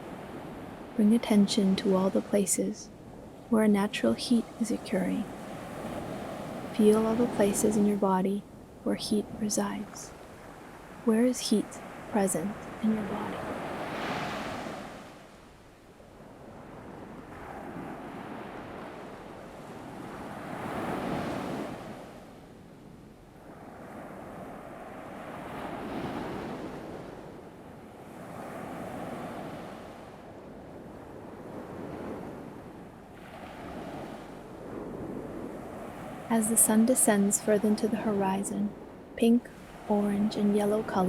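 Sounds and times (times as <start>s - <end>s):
light breeze: 0.0s - 41.0s
ocean waves washing in: 0.0s - 41.0s.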